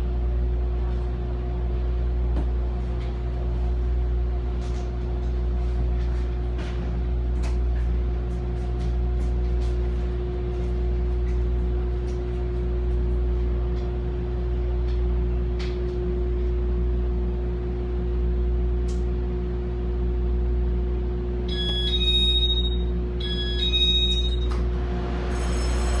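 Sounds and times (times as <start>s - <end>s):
electronic signal tones: 21.5s - 24.6s
electric train hum: 21.5s - 26.0s.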